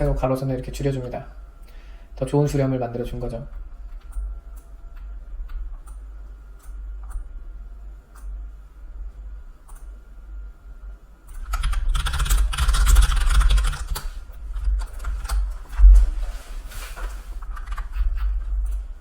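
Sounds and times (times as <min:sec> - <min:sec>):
typing on keyboard: 0:11.4 - 0:15.4.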